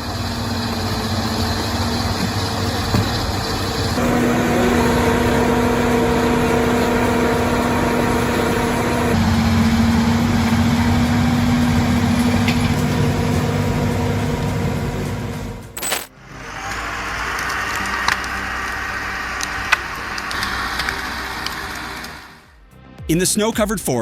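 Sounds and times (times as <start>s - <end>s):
heavy engine running: 0.0s - 15.7s.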